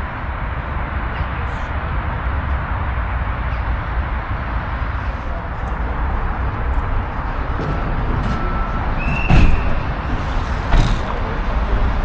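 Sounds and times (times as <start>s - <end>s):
loud thump: 9.1s - 9.9s, 10.7s - 11.2s.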